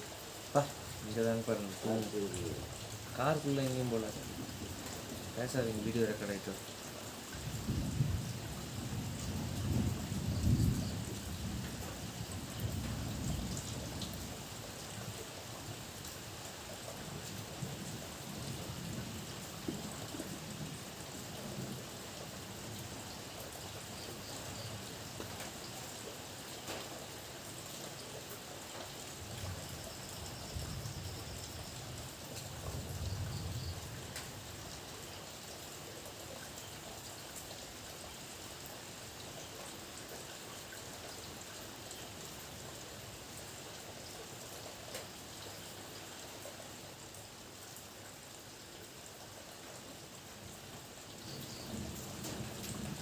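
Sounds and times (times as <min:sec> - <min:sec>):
steady rain falling: 0:00.0 - 0:53.0
low rolls of thunder: 0:00.6 - 0:06.0, 0:07.4 - 0:14.5, 0:17.6 - 0:23.0, 0:29.2 - 0:34.6, 0:51.3 - 0:53.0.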